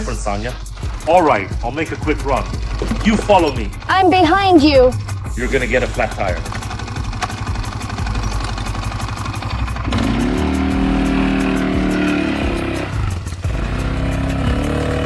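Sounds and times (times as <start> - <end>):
motorbike engine revving: 5.0 - 15.0.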